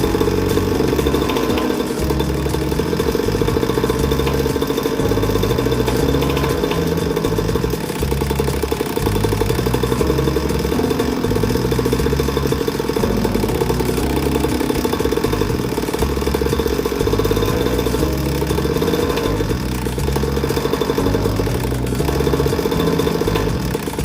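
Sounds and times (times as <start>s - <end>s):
small engine idling: 0.0s - 24.0s.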